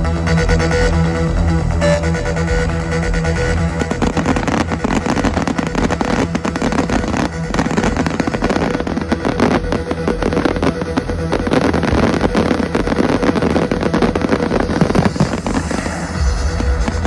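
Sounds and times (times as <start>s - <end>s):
fireworks crackling and popping: 3.8s - 17.0s.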